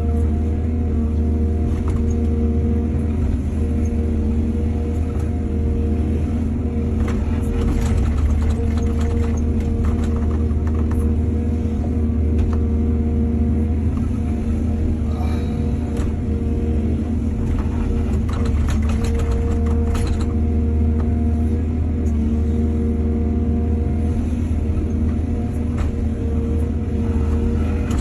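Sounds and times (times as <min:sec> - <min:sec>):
excavator diesel engine rumbling: 0:00.0 - 0:28.0.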